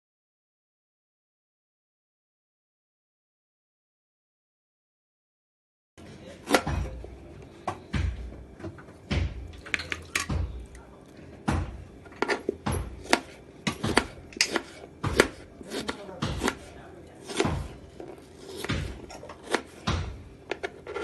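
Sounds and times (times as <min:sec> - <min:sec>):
utensils knocking and clattering: 0:06.5 - 0:07.1, 0:07.7 - 0:10.8, 0:11.4 - 0:16.7, 0:17.3 - 0:21.0.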